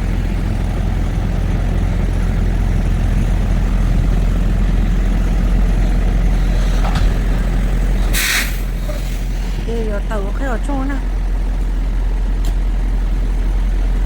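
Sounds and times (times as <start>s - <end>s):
truck engine droning: 0.0s - 14.0s
short sharp air hiss: 8.1s - 9.2s.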